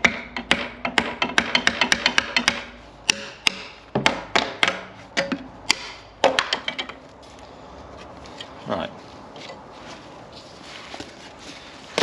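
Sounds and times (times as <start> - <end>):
sharp knocks and taps: 0.0 - 7.0.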